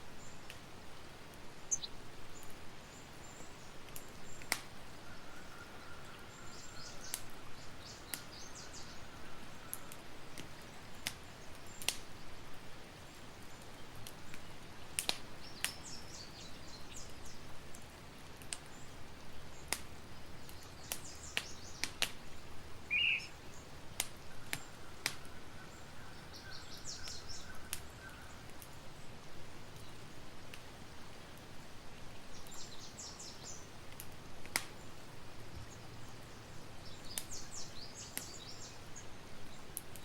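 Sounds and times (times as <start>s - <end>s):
campfire crackling and popping: 0.4s - 2.6s, 3.2s - 4.9s, 6.2s - 40.0s
birds chirping: 1.6s - 2.0s, 22.8s - 23.7s, 24.3s - 28.5s.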